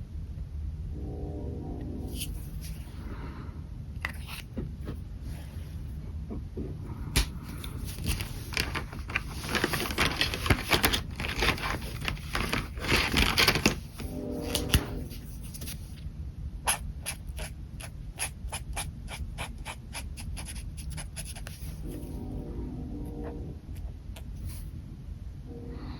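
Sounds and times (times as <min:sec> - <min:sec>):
pen scratching on paper: 0:16.7 - 0:22.1.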